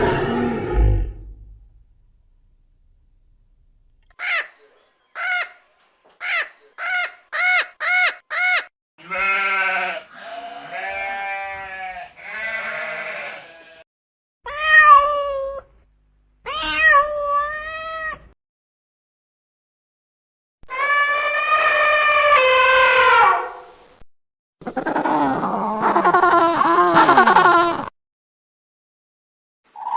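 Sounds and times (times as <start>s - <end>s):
sheep bleating: 9.0s - 13.8s
cat meowing: 14.5s - 15.6s, 16.5s - 18.2s.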